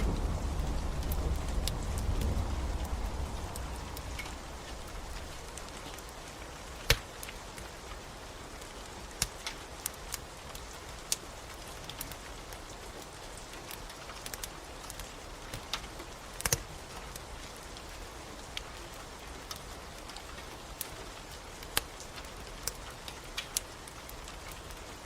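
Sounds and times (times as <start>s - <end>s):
low thunder rumble: 0.0s - 5.8s
steady rain: 0.0s - 25.0s
wood fire crackling: 0.0s - 25.0s.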